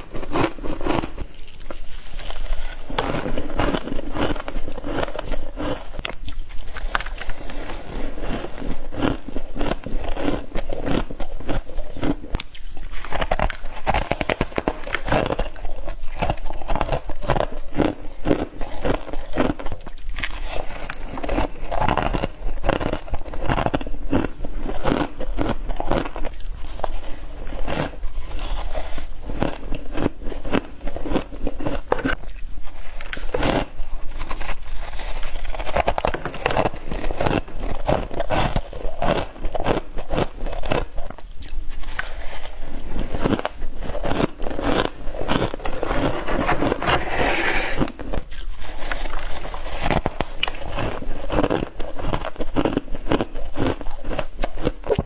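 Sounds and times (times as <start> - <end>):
chewing frost crunching: 0.0 - 46.7.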